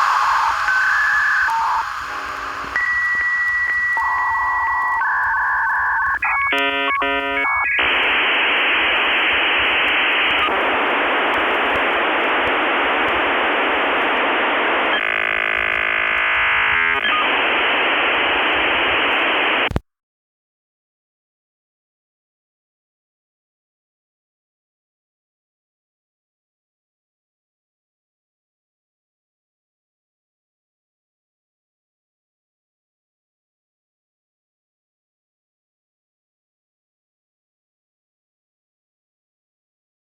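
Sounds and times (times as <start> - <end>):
dial-up modem connecting: 0.0 - 19.8.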